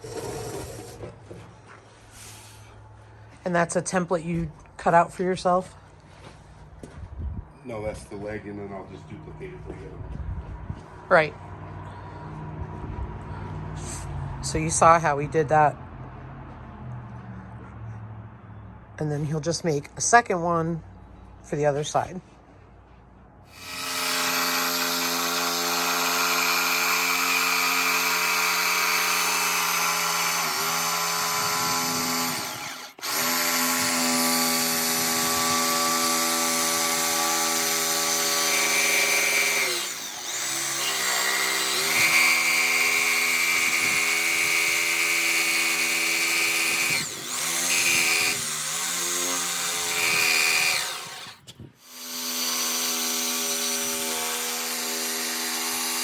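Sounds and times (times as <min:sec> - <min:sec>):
electric power tool motor whine: 0:23.5 - 0:56.0.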